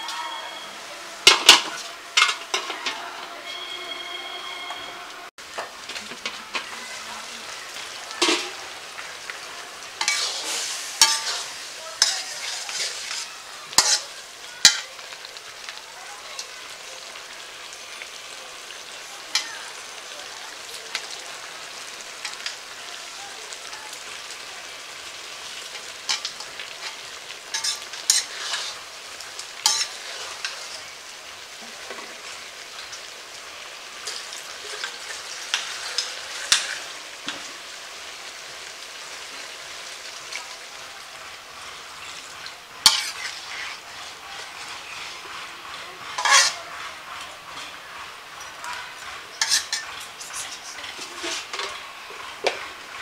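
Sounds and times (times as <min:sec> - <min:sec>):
curry sizzling in oil: 0:00.0 - 0:53.0
metal spatula scraping a wok: 0:01.2 - 0:03.8, 0:07.7 - 0:15.8, 0:24.0 - 0:33.1, 0:34.0 - 0:37.5, 0:41.4 - 0:52.8.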